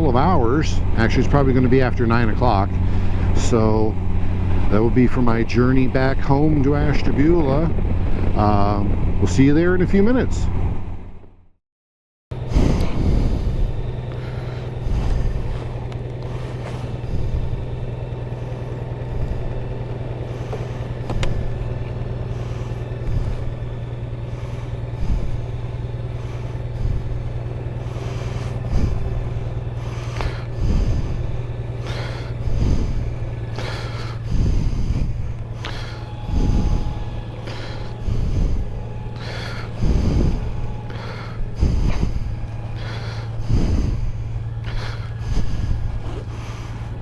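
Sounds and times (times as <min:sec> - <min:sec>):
motorcycle engine running: 0:00.0 - 0:11.5, 0:12.3 - 0:47.0
soft low thumps: 0:12.3 - 0:47.0.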